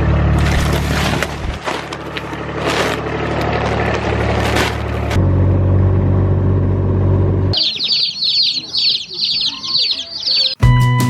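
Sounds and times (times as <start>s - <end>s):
vehicle engine and road rumble: 0.0s - 10.6s
baby chicks peeping: 7.6s - 10.6s.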